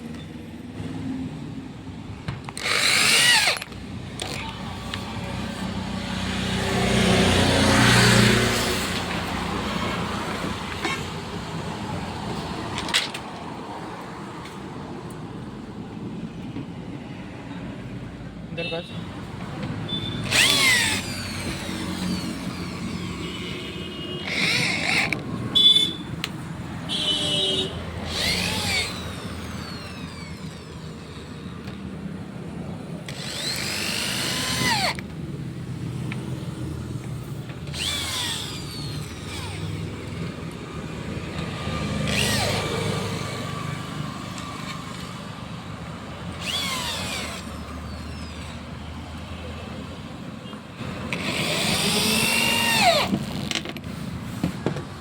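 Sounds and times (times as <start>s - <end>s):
power drill running in bursts: 2.6s - 9.4s, 20.1s - 23.4s, 24.2s - 25.2s, 28.0s - 31.4s, 33.0s - 35.0s, 37.7s - 40.2s, 41.4s - 45.1s, 46.4s - 48.7s, 51.0s - 53.6s.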